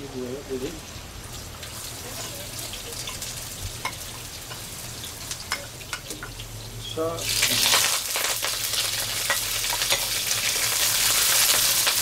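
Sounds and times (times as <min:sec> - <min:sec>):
noodles frying in hot oil: 0:00.0 - 0:12.0
oil crackling and popping: 0:07.2 - 0:12.0.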